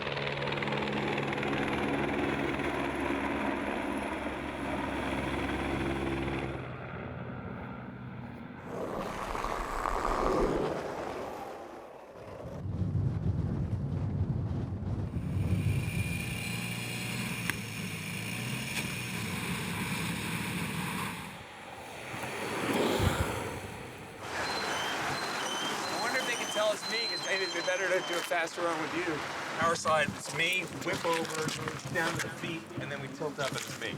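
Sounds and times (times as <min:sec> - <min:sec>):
vehicle engines running: 0:15.1 - 0:22.4, 0:23.8 - 0:33.9.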